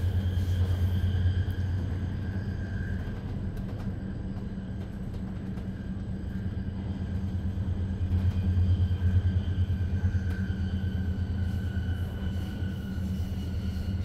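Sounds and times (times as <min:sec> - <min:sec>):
train interior hum and rumble: 0:00.0 - 0:14.0
faint high whine: 0:06.0 - 0:14.0.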